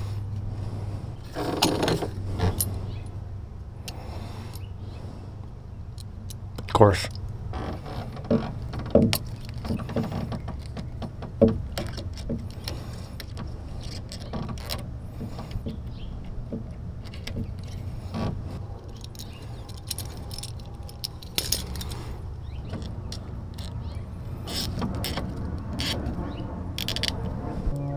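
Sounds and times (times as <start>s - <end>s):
tools clicking and rattling: 1.3s - 3.2s, 8.0s - 27.4s.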